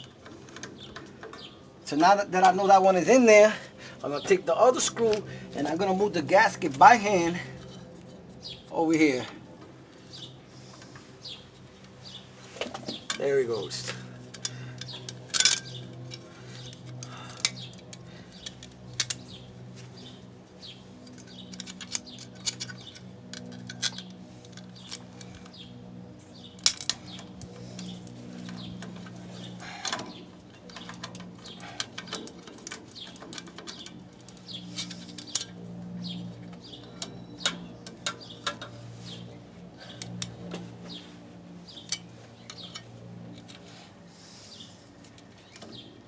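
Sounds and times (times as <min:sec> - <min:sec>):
steady low hum: 0:00.0 - 0:46.0
small metal parts clinking: 0:13.8 - 0:16.2, 0:21.1 - 0:25.5, 0:26.6 - 0:27.9.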